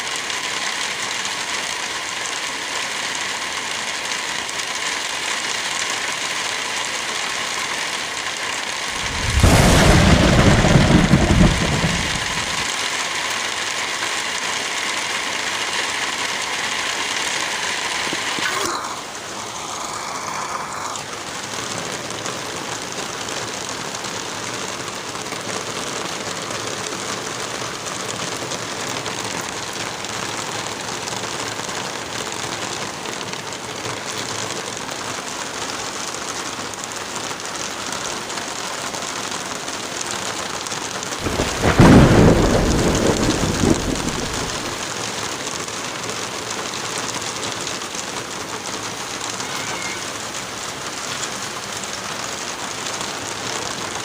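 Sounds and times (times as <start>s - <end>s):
rain pouring: 0.0s - 54.0s
thunder rumbling: 8.9s - 12.7s, 41.2s - 44.9s.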